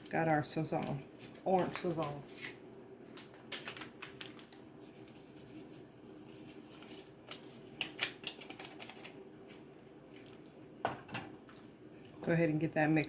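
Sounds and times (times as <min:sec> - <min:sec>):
faint steady hum: 0:00.0 - 0:13.0
foil packet crinkling: 0:03.2 - 0:09.6.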